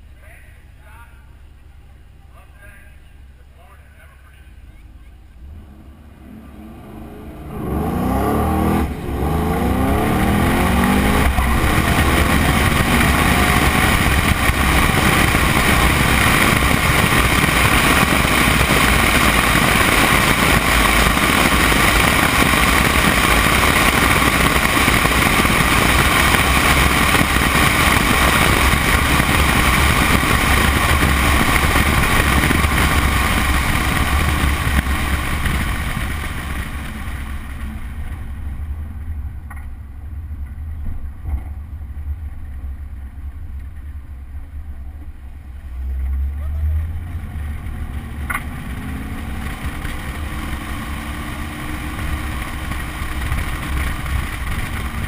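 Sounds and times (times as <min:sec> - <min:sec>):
car engine revving through gears: 0:05.4 - 0:37.6, 0:45.8 - 0:55.0
wind rushing on microphone: 0:08.2 - 0:37.3.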